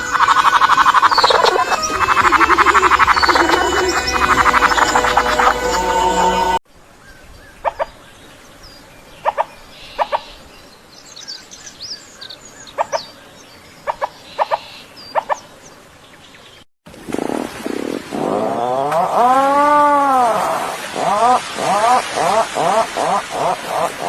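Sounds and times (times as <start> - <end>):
thin high bird chirps: 0.0 - 5.8
animal sound: 0.0 - 6.6.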